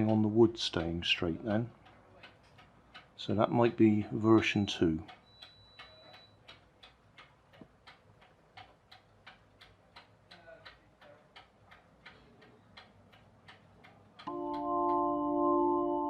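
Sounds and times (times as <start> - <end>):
clock ticking: 0.0 - 15.7
music with held chords: 14.3 - 16.0.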